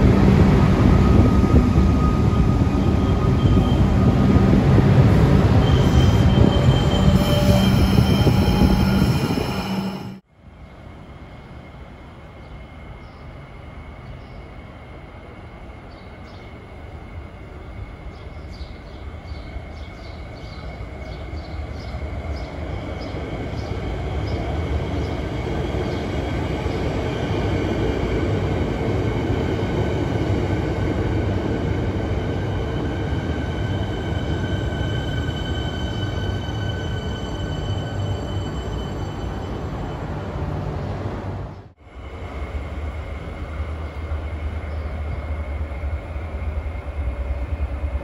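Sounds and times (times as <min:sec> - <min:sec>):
train wheels rumbling on rail: 0:00.0 - 0:10.2
high train motor whine: 0:00.0 - 0:48.0.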